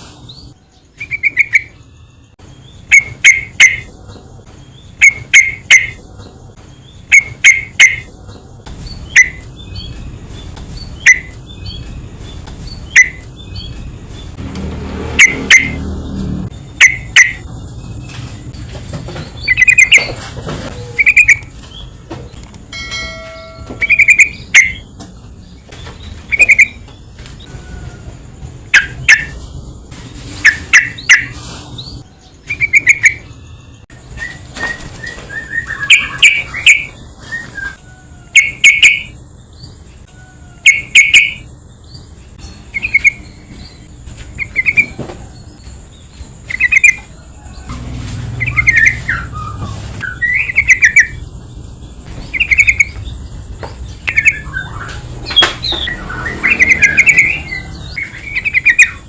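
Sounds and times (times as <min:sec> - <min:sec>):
bird chattering calls: 0:01.0 - 0:01.8, 0:02.8 - 0:04.0, 0:04.8 - 0:06.1, 0:07.0 - 0:08.2, 0:10.8 - 0:13.8, 0:15.2 - 0:15.8, 0:16.6 - 0:17.5, 0:19.3 - 0:21.6, 0:23.8 - 0:24.9, 0:26.2 - 0:26.8, 0:30.4 - 0:31.4, 0:35.4 - 0:37.0, 0:38.3 - 0:39.2, 0:40.6 - 0:41.5, 0:42.7 - 0:43.4, 0:46.5 - 0:47.2, 0:48.4 - 0:51.2, 0:52.2 - 0:53.2, 0:54.0 - 0:59.0.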